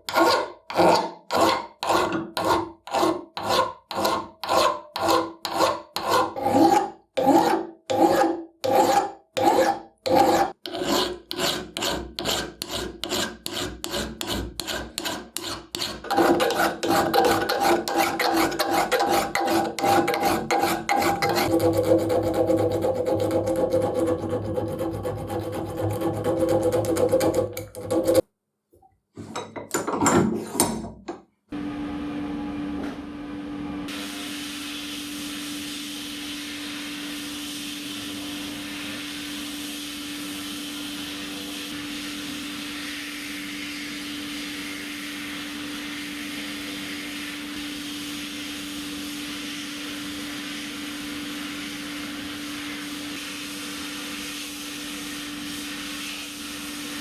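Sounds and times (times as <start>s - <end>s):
hand file rasping: 0.0s - 28.2s
loud scrapes: 0.0s - 28.2s.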